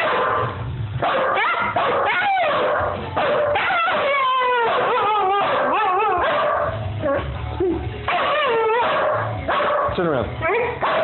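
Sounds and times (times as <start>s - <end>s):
husky howling whines: 1.2s - 9.3s.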